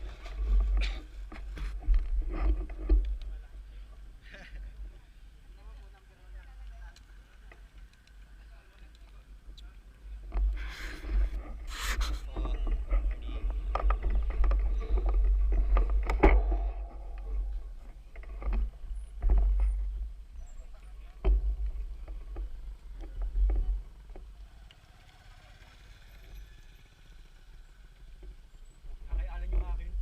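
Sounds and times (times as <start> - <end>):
bicycle knocks and rattles: 0.0 - 3.5, 12.3 - 24.4, 29.0 - 30.0
wind rumbling on microphone: 0.0 - 4.2, 9.2 - 24.4, 28.8 - 30.0.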